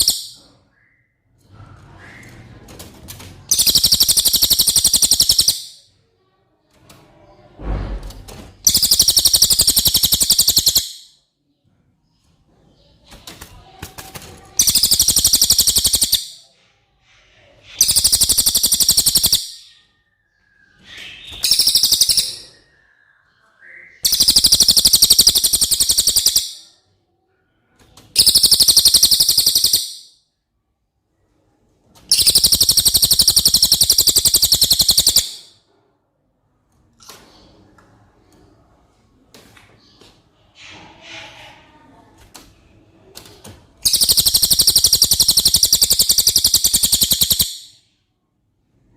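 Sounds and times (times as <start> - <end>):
bird rattling trills: 3.5 - 5.7, 8.6 - 11.0, 14.5 - 16.3, 17.8 - 19.6, 21.1 - 22.5, 24.0 - 26.6, 28.2 - 30.1, 32.1 - 35.5, 43.8 - 47.7.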